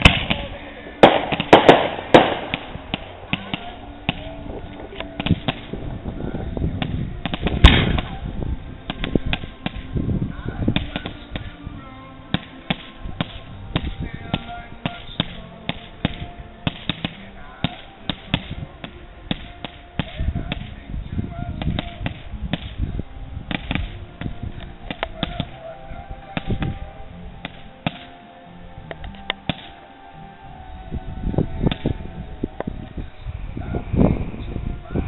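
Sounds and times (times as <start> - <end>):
fireworks bangs and pops: 0.0 - 4.2, 5.1 - 5.8, 6.8 - 8.1, 12.3 - 20.8, 21.6 - 22.8, 23.5 - 25.5.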